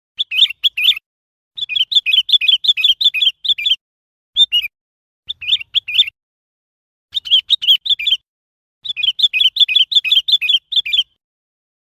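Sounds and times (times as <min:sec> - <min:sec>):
bird chirping: 0:00.2 - 0:01.0, 0:01.6 - 0:03.8, 0:04.4 - 0:04.7, 0:05.3 - 0:06.2, 0:07.1 - 0:11.2.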